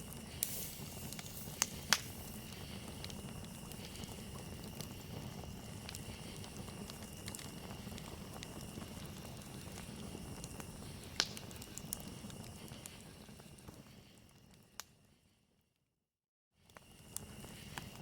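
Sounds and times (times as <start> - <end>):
crickets chirring: 0.0 - 13.4
loud fire crack: 0.0 - 14.2, 16.7 - 18.0
campfire crackling and popping: 0.0 - 14.9, 16.7 - 18.0.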